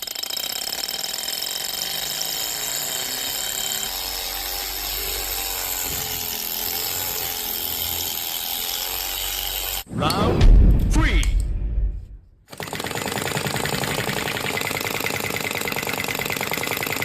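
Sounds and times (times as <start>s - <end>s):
toy engine mechanical clatter: 0.0s - 4.0s, 12.5s - 17.0s.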